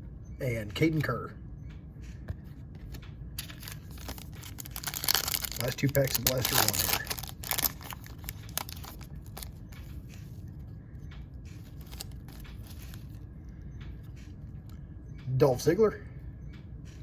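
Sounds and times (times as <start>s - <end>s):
cards rustling: 2.8s - 10.4s, 11.6s - 13.2s
foil wrapper crinkling and tearing: 3.4s - 9.6s, 11.6s - 13.1s.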